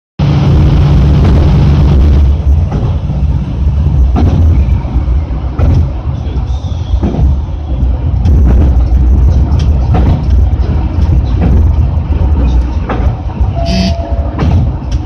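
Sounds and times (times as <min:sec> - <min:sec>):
diesel railcar engine running: 0:00.2 - 0:15.0
running gear knocks: 0:08.3 - 0:13.3.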